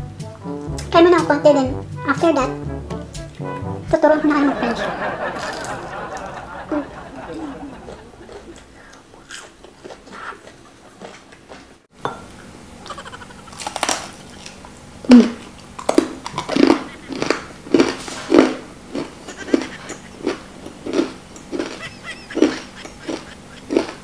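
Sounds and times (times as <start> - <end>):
chewing fried meat: 5.4 - 6.3, 7.2 - 11.9, 12.8 - 24.0.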